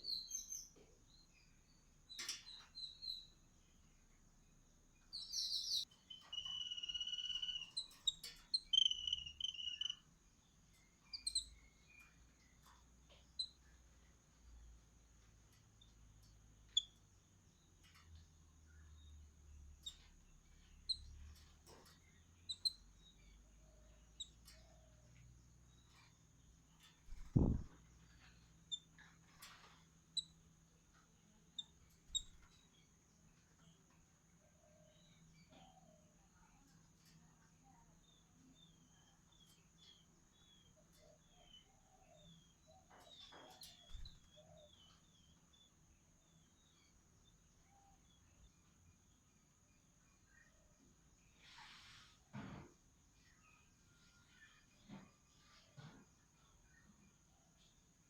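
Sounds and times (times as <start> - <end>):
faint bird chirps: 0.0 - 58.0.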